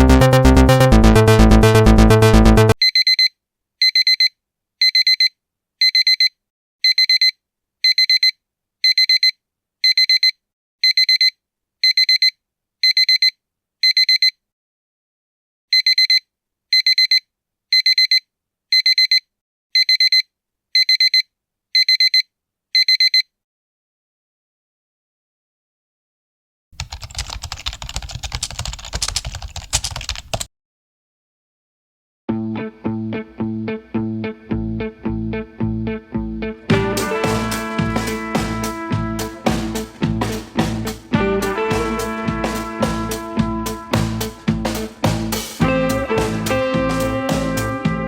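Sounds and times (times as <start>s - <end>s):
electronic music: 0.0s - 2.8s, 36.4s - 48.0s
alarm clock beeping: 2.8s - 14.3s.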